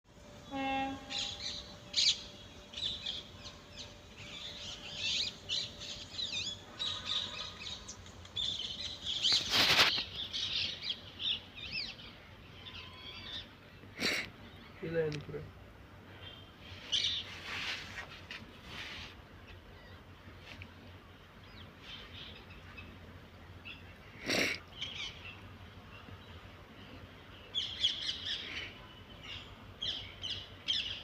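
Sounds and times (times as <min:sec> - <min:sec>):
birds chirping and whistling: 0:01.1 - 0:13.5.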